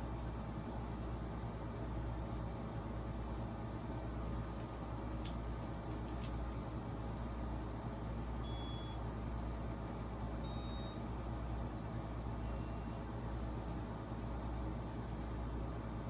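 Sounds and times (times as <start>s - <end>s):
ceiling fan humming: 0.0s - 16.0s
short high beeps: 8.5s - 9.0s, 10.5s - 11.0s, 12.5s - 13.0s.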